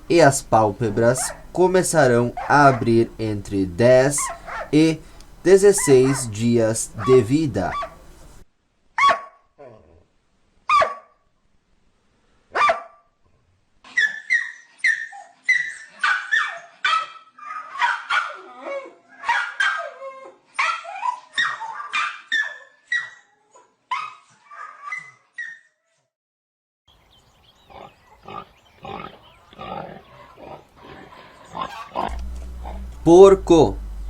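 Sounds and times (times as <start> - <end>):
dog barking: 1.1 - 1.6, 2.4 - 3.0, 4.2 - 4.8, 5.8 - 6.4, 7.0 - 8.0, 9.0 - 9.4, 10.7 - 11.2, 12.5 - 13.0, 16.0 - 18.5, 19.2 - 20.0, 31.7 - 33.1.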